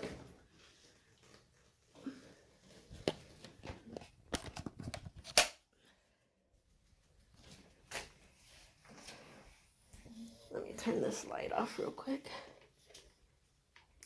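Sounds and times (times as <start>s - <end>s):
camera being handled: 3.0s - 5.6s.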